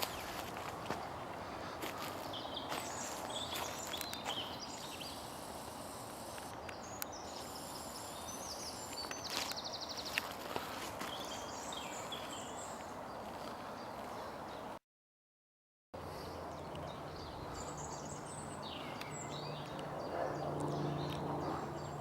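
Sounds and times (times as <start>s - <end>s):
songbirds singing: 0.0s - 14.8s, 16.0s - 22.0s
sharp clicks: 3.9s - 4.4s.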